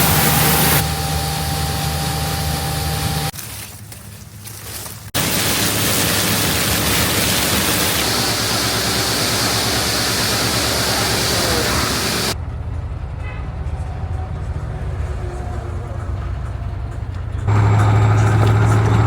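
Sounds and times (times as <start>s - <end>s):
loud rushing hiss: 0.0s - 3.4s, 5.1s - 12.4s
heavy machinery engine: 0.0s - 3.5s, 4.2s - 19.0s.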